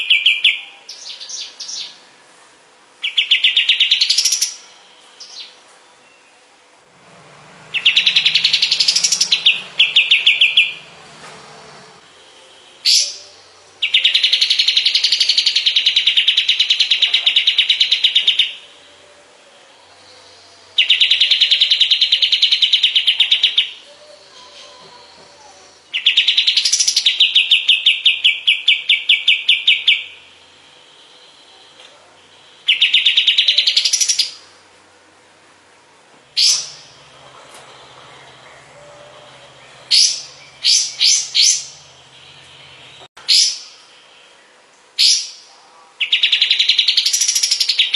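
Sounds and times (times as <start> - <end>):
bird rapid trills: 7.6 - 13.2, 36.4 - 43.8.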